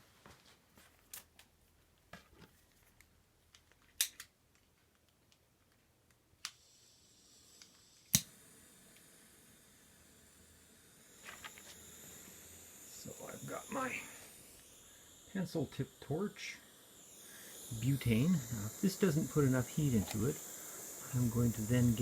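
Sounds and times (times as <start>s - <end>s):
torch igniter clicks: 3.0s - 4.4s, 6.1s - 6.7s, 7.4s - 9.2s, 17.0s - 22.0s
torch flame hissing: 6.5s - 22.0s.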